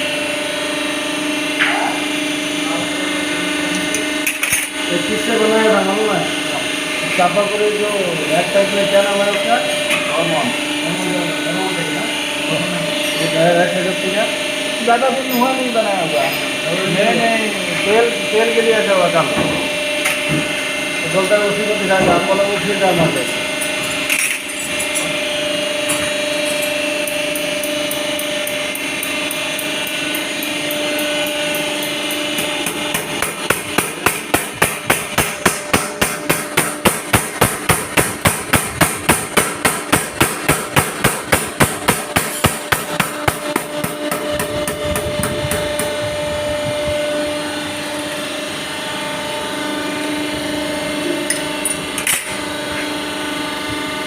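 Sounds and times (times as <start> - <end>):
machine hum: 0.0 - 54.0.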